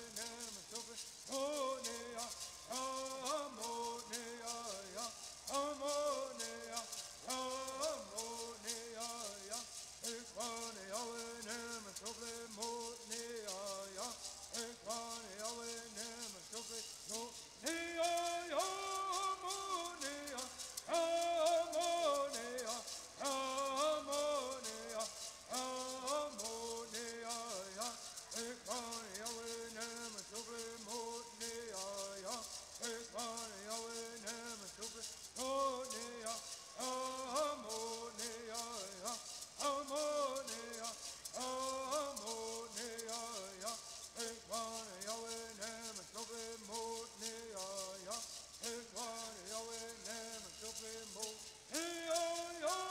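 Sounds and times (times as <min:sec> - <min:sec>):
gourd rattles shaken: 0:00.0 - 0:52.9
voices singing in unison: 0:00.0 - 0:52.9.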